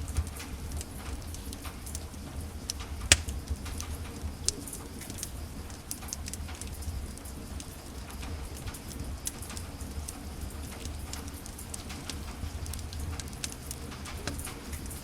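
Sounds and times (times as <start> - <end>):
low rumble of flames: 0.0 - 15.0
wood fire crackling: 0.1 - 15.0
sharp loud pop of fire: 3.1 - 3.3.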